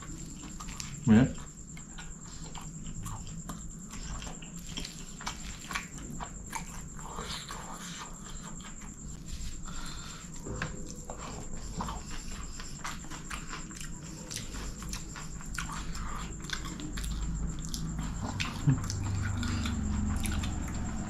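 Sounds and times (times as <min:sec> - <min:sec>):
wet smacking chewing: 0:00.0 - 0:21.0.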